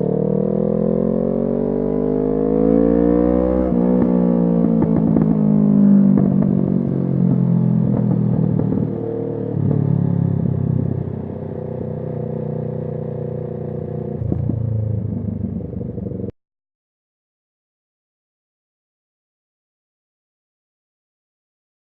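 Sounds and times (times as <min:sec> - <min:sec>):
motorcycle engine running: 0:03.7 - 0:16.3.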